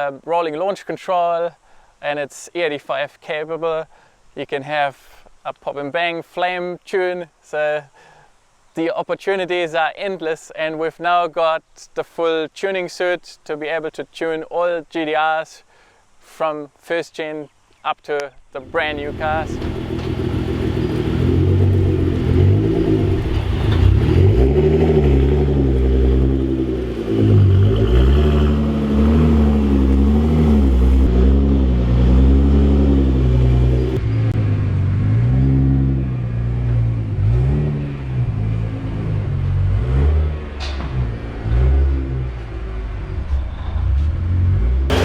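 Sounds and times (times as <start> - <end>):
car engine revving: 18.7 - 45.0.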